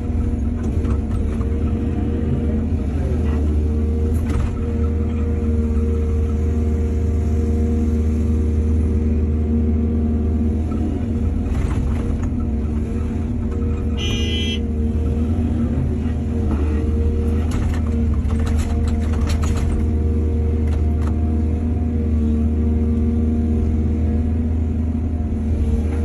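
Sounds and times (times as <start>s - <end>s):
excavator diesel engine drone: 0.0s - 26.0s
high-pitched tone: 14.0s - 14.6s
knocks and clatter: 17.3s - 20.0s.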